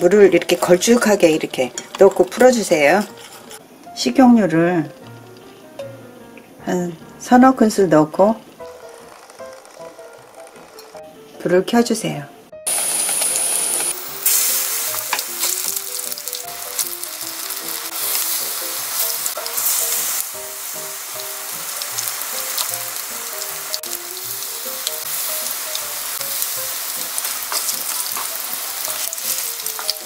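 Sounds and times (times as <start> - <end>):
soft background music: 0.0 - 30.0
food frying in oil: 12.7 - 30.0.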